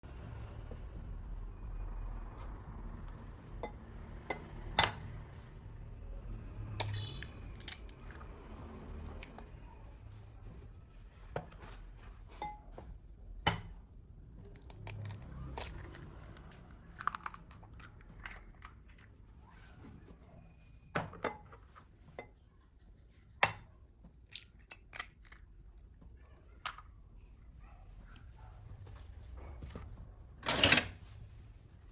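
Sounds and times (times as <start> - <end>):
food crunching and tearing: 14.6 - 19.2.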